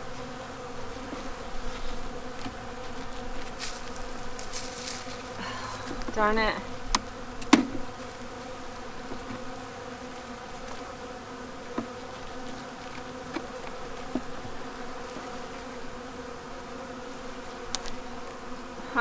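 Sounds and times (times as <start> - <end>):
honeybees buzzing: 0.0 - 19.0
faint ticks: 17.7 - 18.4.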